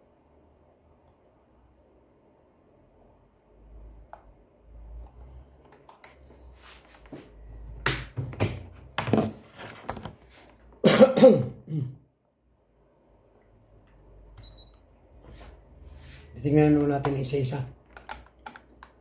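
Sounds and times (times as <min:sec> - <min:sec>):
person coughing: 0:10.8 - 0:12.0.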